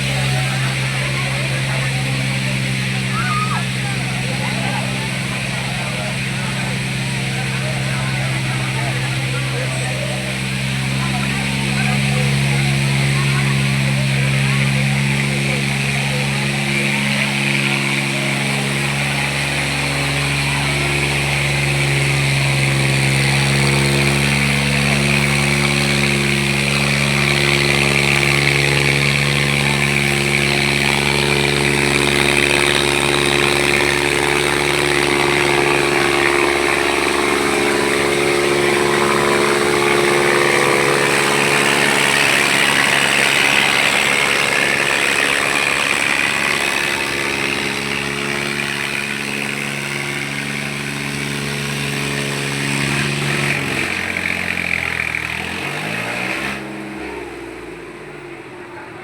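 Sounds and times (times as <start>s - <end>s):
high engine whine: 0.0s - 59.0s
tractor diesel engines under load: 0.0s - 59.0s.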